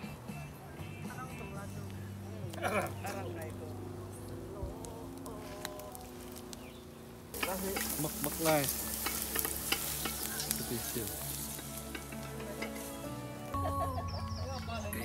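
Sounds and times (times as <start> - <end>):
utensil scraping a pot: 7.4 - 13.2
food sizzling in a pot: 7.4 - 13.5.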